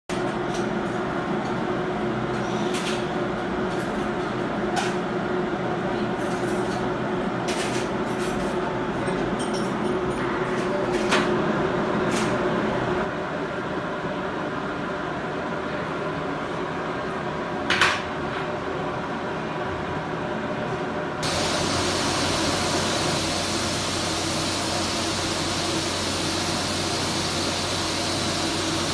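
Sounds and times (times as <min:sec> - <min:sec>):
pet blower-dryer humming: 0:21.2 - 0:28.9.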